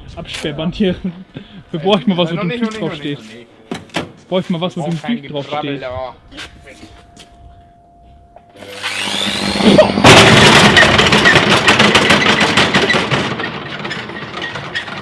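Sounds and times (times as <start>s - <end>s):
washing machine motor whirring: 8.6s - 11.7s
brick banging in drum: 10.0s - 15.0s.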